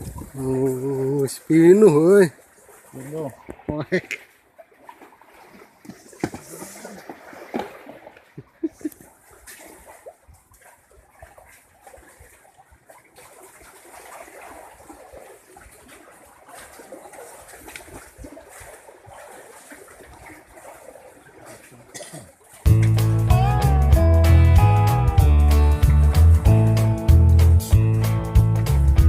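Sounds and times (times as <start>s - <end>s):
sea water lapping and splashing: 0.0s - 23.2s.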